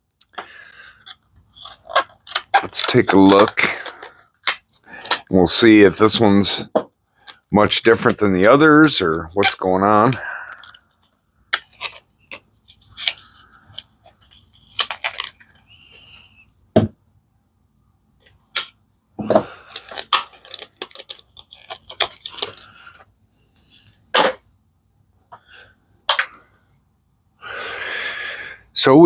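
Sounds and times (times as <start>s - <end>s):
packaging rustling: 0.9s - 6.2s, 9.4s - 16.4s, 19.5s - 23.9s.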